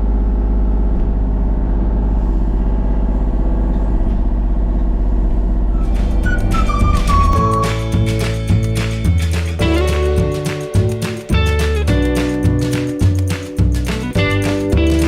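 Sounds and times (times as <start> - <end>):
engine running steadily: 0.0 - 15.0
music: 5.8 - 15.0.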